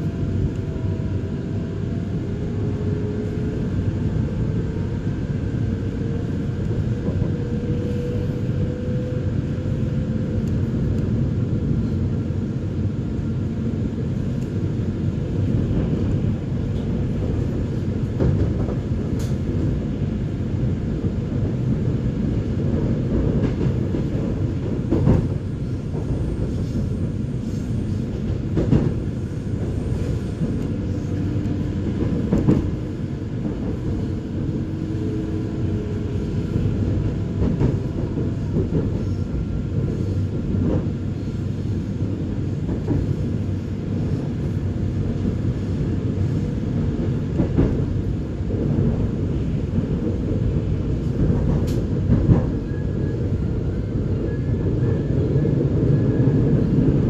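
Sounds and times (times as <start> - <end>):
train rumbling on track: 0.0 - 57.0.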